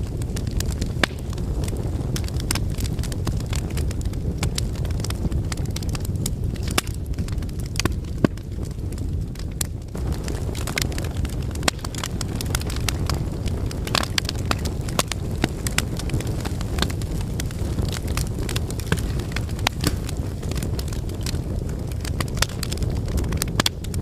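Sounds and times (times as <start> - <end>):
fire low rumble: 0.0 - 24.0
wood fire crackling and popping: 0.0 - 24.0.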